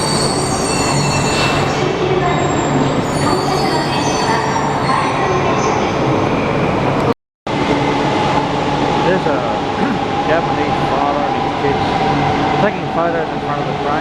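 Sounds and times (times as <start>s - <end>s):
high squealing tones: 0.0s - 5.2s.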